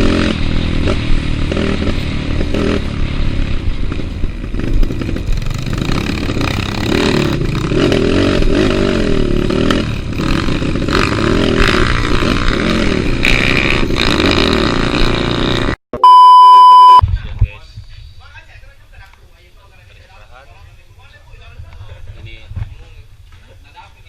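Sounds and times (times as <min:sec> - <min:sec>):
motorcycle engine revving: 0:00.0 - 0:15.8
electronic beep tone: 0:16.0 - 0:17.0.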